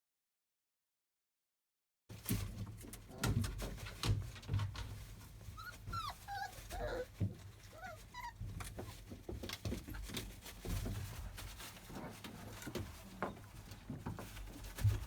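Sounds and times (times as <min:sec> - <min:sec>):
puppies whimpering and squeaking: 0:05.2 - 0:10.8.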